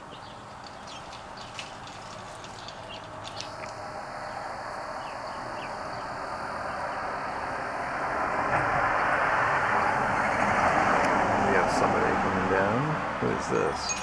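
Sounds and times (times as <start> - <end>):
small birds chirping: 0.0 - 7.2, 13.4 - 14.0
passing vehicle: 0.0 - 14.0.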